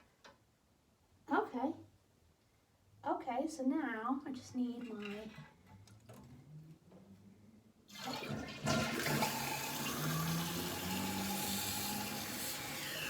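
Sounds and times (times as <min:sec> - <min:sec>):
toilet flushing: 0:07.9 - 0:13.0.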